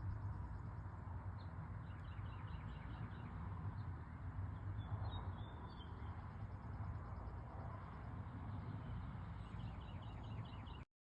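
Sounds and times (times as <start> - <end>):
bird chirps: 9.4 - 10.8.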